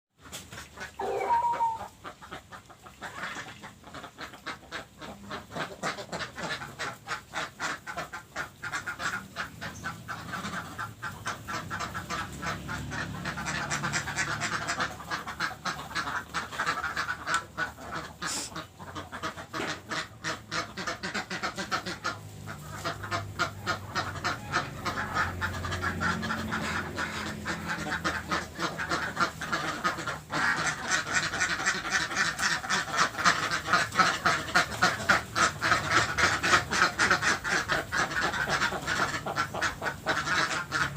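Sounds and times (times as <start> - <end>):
waterfowl quacking: 0.2 - 40.9
rising bird call: 1.0 - 1.9.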